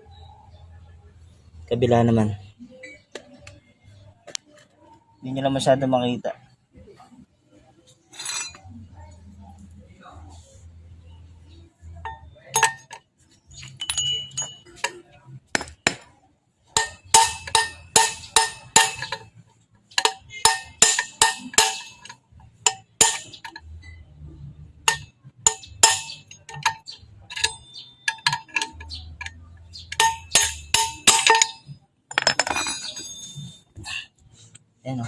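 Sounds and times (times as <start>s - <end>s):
hammer striking metal: 13.8s - 16.1s, 16.8s - 19.3s, 20.0s - 24.0s, 24.8s - 33.5s.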